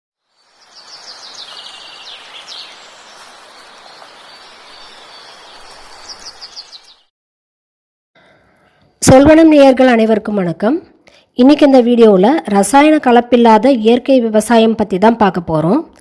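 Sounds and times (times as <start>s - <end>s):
outdoor hiss: 0.2s - 7.0s
birds chirping: 0.2s - 7.1s.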